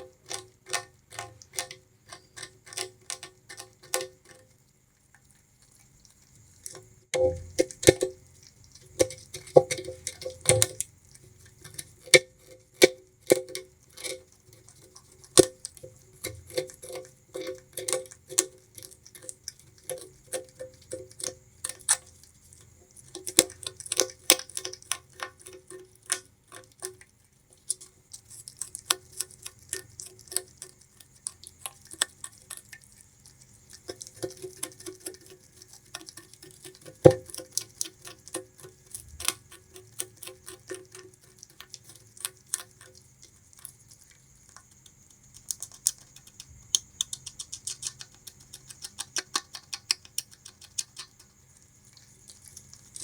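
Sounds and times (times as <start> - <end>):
rat gnawing sugarcane: 0.0 - 53.0.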